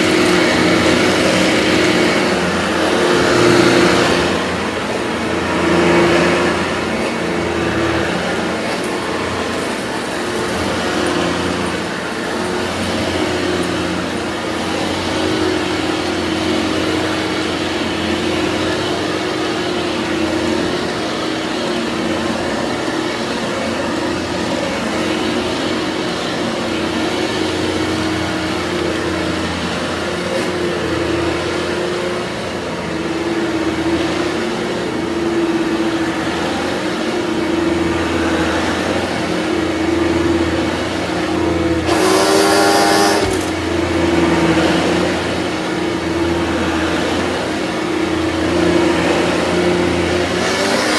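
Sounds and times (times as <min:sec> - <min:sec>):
vacuum cleaner running: 0:00.0 - 0:50.9.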